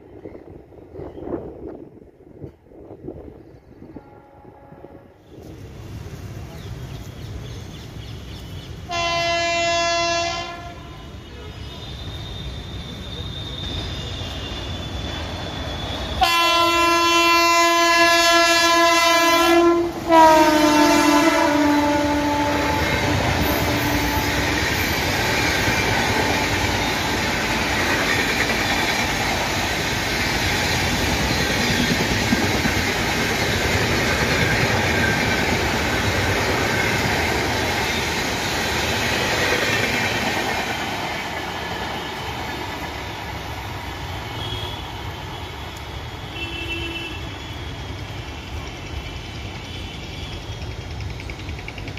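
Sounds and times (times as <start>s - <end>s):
train coaches rushing past: 0.0s - 51.9s
train horn blasts: 3.9s - 5.5s, 8.8s - 15.1s, 15.7s - 25.0s, 44.3s - 47.6s.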